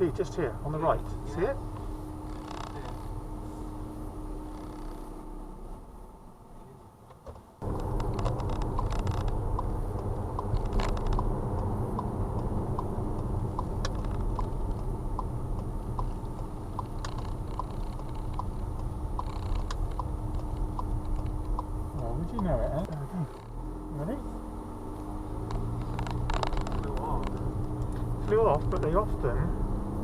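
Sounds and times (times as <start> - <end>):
car engine running: 0.0 - 30.0
light regular ticking: 0.2 - 3.4, 4.4 - 5.1, 7.6 - 29.3.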